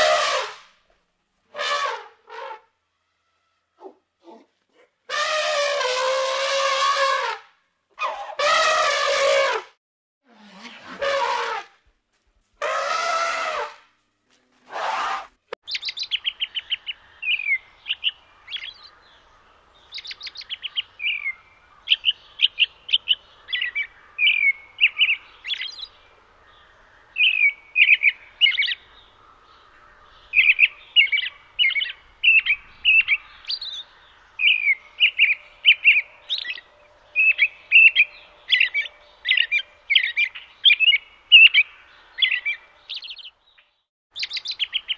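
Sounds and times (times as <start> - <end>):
elephants trumpeting: 8.0 - 9.6, 12.6 - 13.8, 14.6 - 15.4
robin singing: 15.6 - 44.9.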